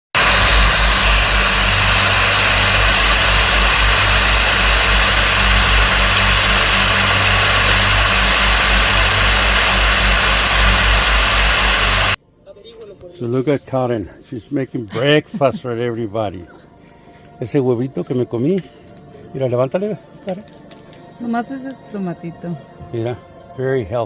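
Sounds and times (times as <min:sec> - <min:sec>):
waterfall rushing: 0:00.2 - 0:12.2.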